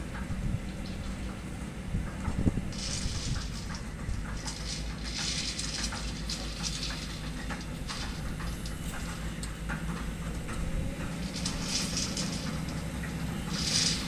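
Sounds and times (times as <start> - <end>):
excavator diesel engine running: 0.0 - 14.0
metallic clanks of steel: 2.7 - 14.0.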